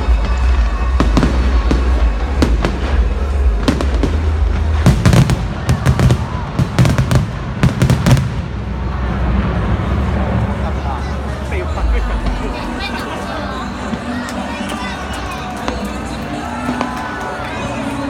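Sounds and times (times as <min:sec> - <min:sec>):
fireworks bangs and crackles: 0:00.0 - 0:12.6, 0:13.7 - 0:17.9
low rumble: 0:00.0 - 0:13.0
music: 0:00.0 - 0:18.0.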